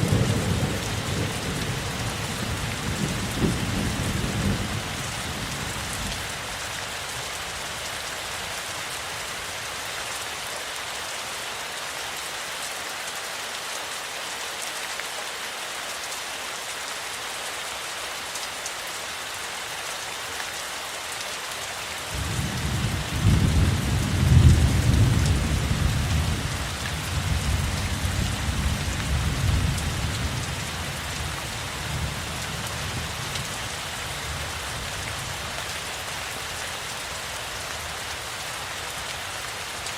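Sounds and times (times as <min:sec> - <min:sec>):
low roll of thunder: 0:00.0 - 0:05.4, 0:22.2 - 0:30.7
heavy rain falling: 0:00.0 - 0:39.9.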